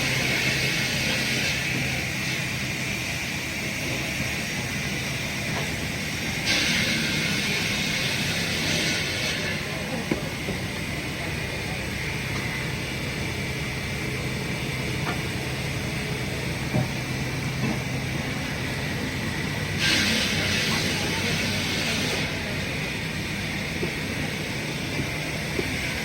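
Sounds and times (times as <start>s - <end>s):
hiss: 0.0s - 9.8s, 19.7s - 23.4s
heavy machinery humming: 0.0s - 26.0s.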